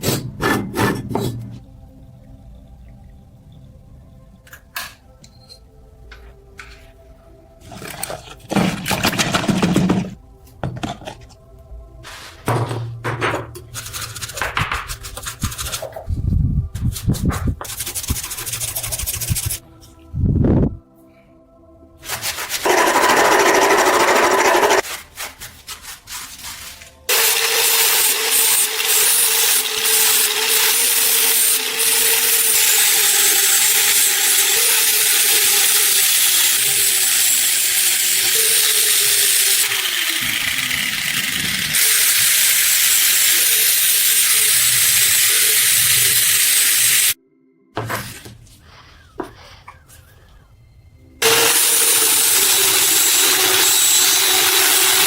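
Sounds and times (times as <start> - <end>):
power tool abrading metal: 22.6 - 24.8, 27.1 - 47.2, 51.2 - 55.0.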